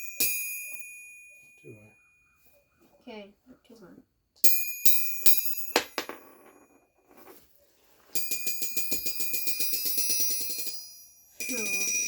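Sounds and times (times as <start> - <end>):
steel ball bouncing on anvil: 4.5 - 6.8.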